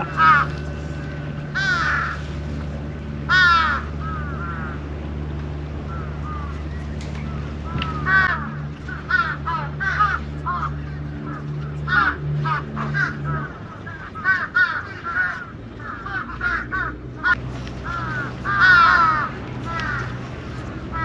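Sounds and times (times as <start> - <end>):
birds calling: 0.0 - 10.8
steady low hum: 0.0 - 21.0.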